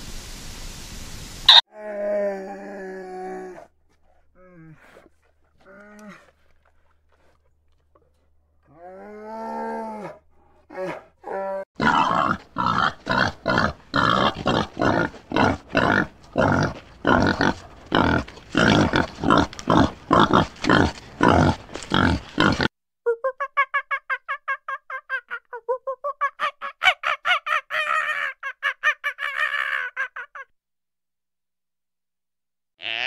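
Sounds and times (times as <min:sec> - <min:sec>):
loud rhythmic animal grunts: 0:03.7 - 0:22.7.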